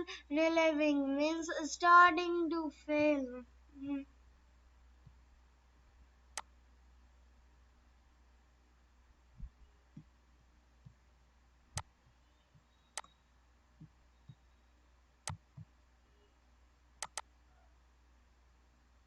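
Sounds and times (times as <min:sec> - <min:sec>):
faint low hum: 0:00.0 - 0:19.0
sharp clicks: 0:12.9 - 0:13.2, 0:15.2 - 0:15.7, 0:17.0 - 0:17.3.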